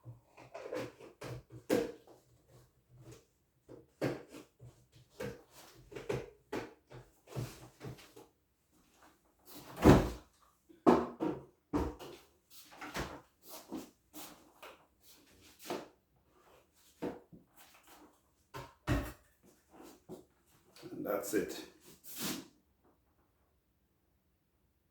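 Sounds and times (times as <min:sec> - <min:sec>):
kitchen items knocking and clunking: 0:10.8 - 0:12.2, 0:18.6 - 0:19.3.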